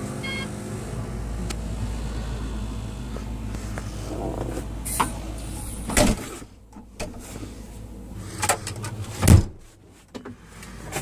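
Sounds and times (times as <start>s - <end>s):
clunks and knocks of controls: 3.0s - 11.0s.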